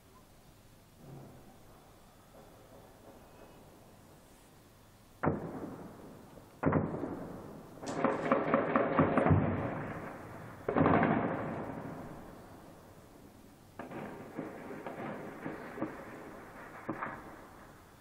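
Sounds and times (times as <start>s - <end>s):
gunfire echoing between buildings: 5.2s - 12.8s, 13.8s - 18.0s.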